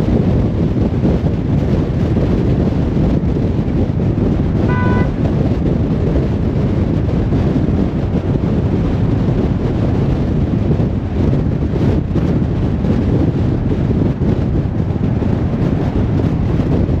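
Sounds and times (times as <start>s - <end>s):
car tyre and engine rumble: 0.0s - 17.0s
short high beep: 4.7s - 5.2s.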